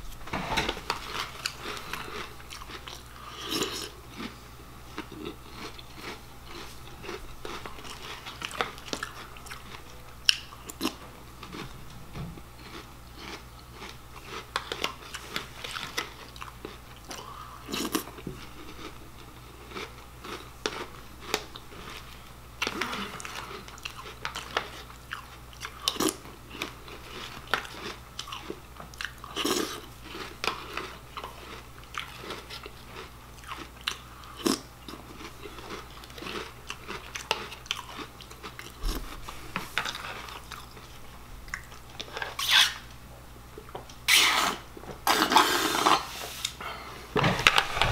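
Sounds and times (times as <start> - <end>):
cereal crunching: 5.0 - 11.7.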